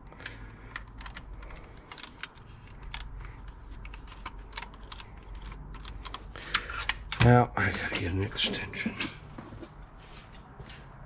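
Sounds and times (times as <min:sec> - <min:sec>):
metallic clicks of hand tools: 0:05.8 - 0:07.3.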